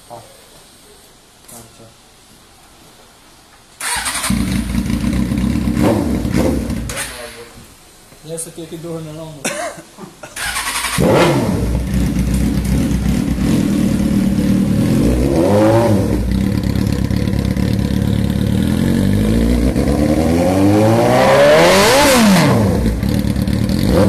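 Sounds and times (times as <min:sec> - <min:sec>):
motorcycle engine idling and revving: 0:03.8 - 0:07.4, 0:10.4 - 0:24.0.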